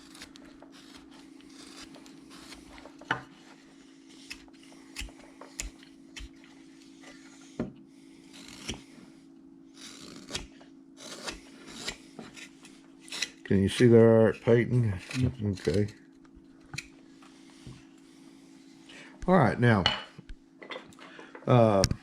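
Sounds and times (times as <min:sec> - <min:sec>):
knife shaving wood: 0:00.0 - 0:18.9
steady low hum: 0:00.0 - 0:22.0.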